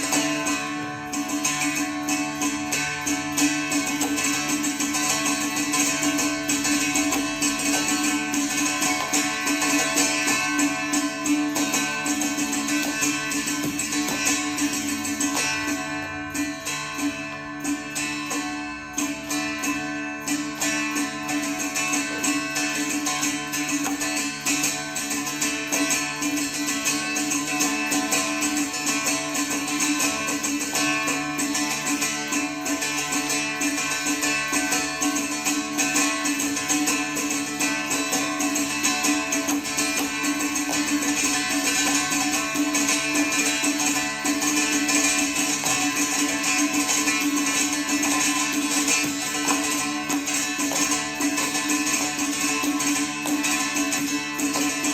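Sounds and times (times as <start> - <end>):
classical instrumental music: 0.0 - 54.9.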